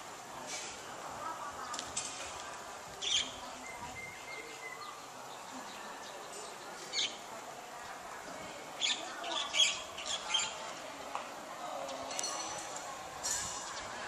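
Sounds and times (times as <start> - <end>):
outdoor background hiss: 0.0 - 14.0
birds chirping: 3.0 - 8.1, 8.8 - 10.8.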